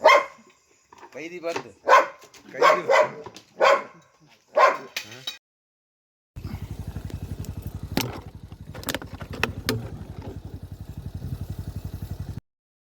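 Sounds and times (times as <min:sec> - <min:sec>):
engine idling: 0:06.4 - 0:12.4.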